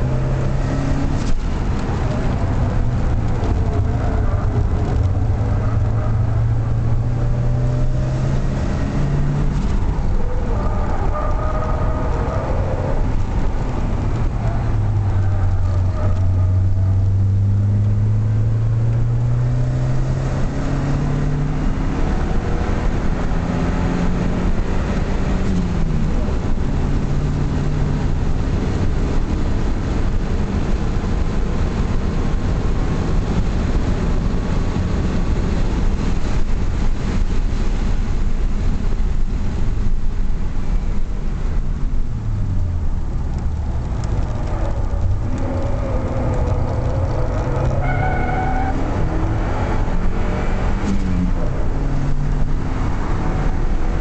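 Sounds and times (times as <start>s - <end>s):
car engine accelerating: 0.0s - 54.0s
road and wind noise: 0.0s - 54.0s.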